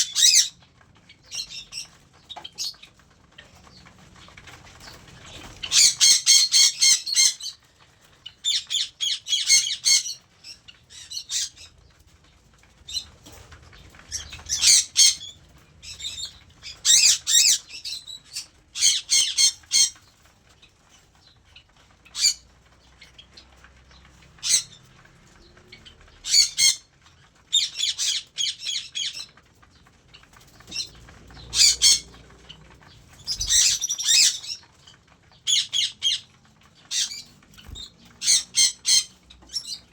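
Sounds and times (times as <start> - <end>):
cockatiels screeching: 0.0 - 0.6, 5.3 - 7.6, 8.4 - 11.7, 14.1 - 20.1, 22.1 - 22.5, 24.4 - 24.8, 26.2 - 26.9, 27.5 - 29.4, 30.4 - 34.7, 35.4 - 39.9.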